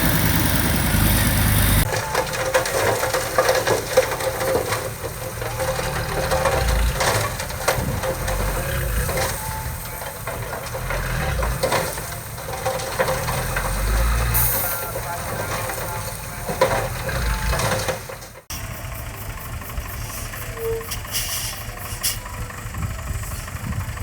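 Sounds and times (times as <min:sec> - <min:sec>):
clanks and crunching: 0:00.0 - 0:18.6
diesel engine running: 0:00.0 - 0:24.0.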